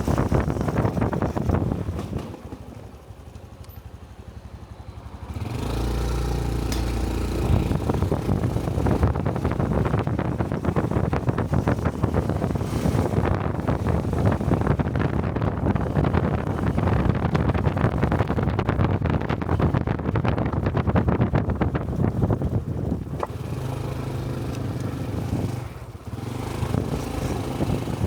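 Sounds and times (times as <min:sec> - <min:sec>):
wind buffeting microphone: 0:00.0 - 0:03.3, 0:03.9 - 0:28.0
motorcycle engine: 0:00.0 - 0:28.0.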